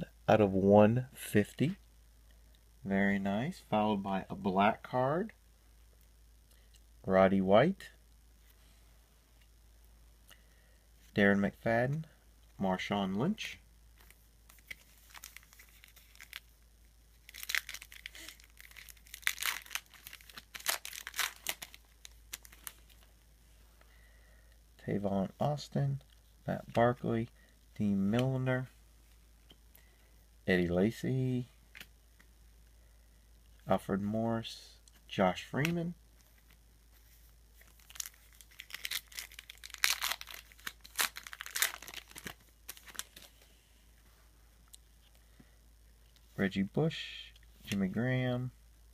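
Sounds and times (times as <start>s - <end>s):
card pack wrapper crinkling and tearing: 14.0s - 23.1s, 37.6s - 43.4s.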